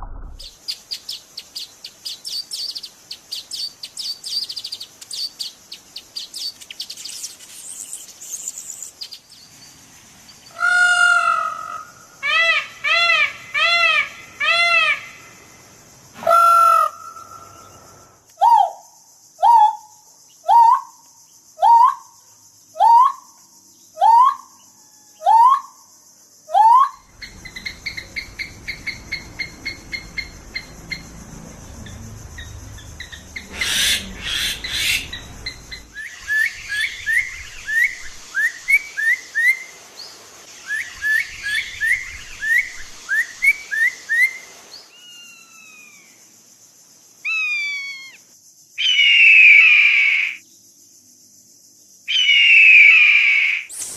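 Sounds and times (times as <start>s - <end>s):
bird-like calls and chirps: 0.4s - 15.4s, 16.3s - 25.9s, 26.5s - 46.2s, 47.2s - 48.2s, 48.8s - 50.4s
steady high hiss: 0.4s - 16.2s, 27.0s - 49.0s, 53.5s - 53.9s.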